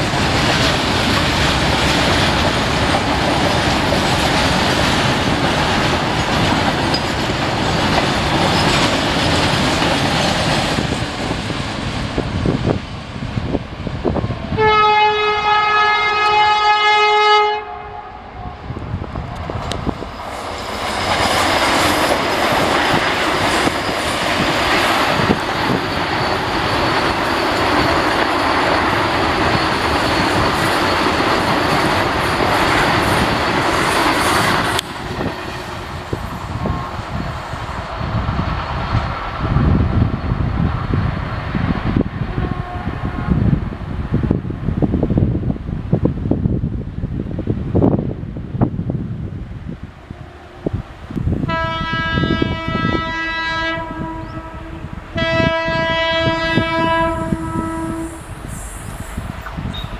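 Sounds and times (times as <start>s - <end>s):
freight train wheels rumbling: 0.0s - 59.9s
train passing at speed: 0.0s - 59.9s
loud train horn: 14.5s - 18.7s, 42.2s - 43.6s, 51.4s - 58.8s.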